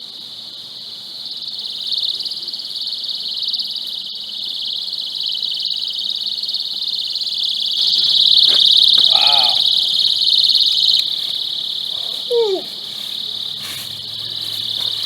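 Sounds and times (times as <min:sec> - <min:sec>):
personal alarm shrieking: 0:07.0 - 0:12.8.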